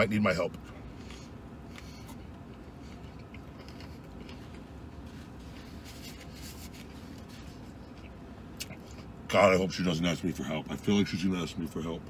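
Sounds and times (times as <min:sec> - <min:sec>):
vehicle cabin hum: 0:00.0 - 0:12.0
chewing a sandwich: 0:00.6 - 0:09.2.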